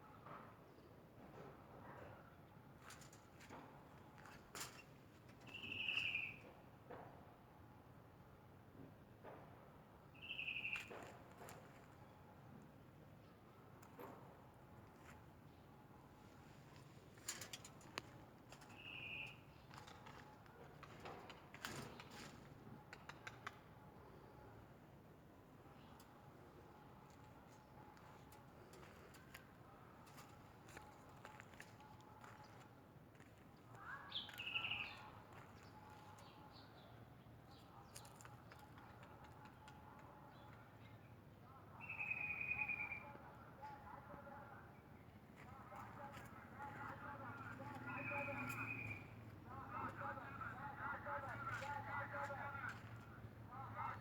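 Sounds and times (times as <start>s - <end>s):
faint bird chirps: 5.4s - 6.5s, 10.2s - 11.0s, 18.6s - 19.7s, 33.7s - 38.2s, 41.7s - 43.2s, 47.8s - 49.2s
bird calling: 5.5s - 6.5s, 10.2s - 11.0s, 18.6s - 19.6s, 33.8s - 35.1s, 47.6s - 50.9s.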